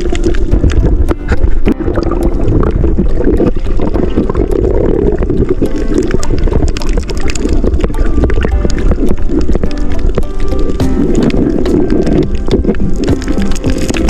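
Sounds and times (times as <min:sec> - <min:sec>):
water sloshing and splashing: 0:00.0 - 0:14.0
wind buffeting microphone: 0:00.0 - 0:14.0.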